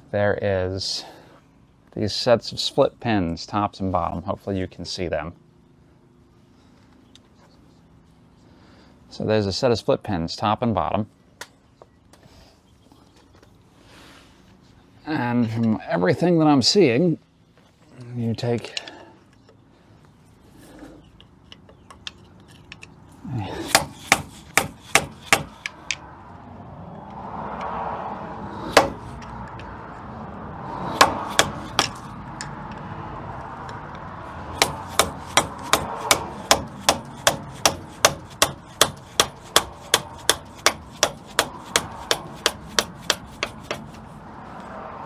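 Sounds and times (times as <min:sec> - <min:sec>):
hammer striking screwdriver: 0:23.6 - 0:25.8, 0:28.7 - 0:29.2, 0:30.9 - 0:32.1, 0:34.6 - 0:44.1.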